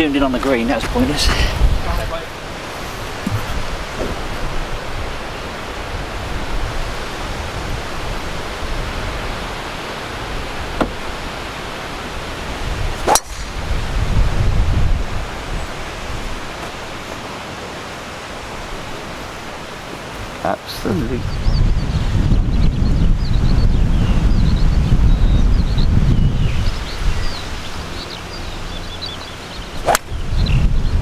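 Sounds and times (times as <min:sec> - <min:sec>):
wind buffeting microphone: 0:00.0 - 0:31.0
golf club striking ball: 0:13.0 - 0:13.9, 0:29.8 - 0:30.2.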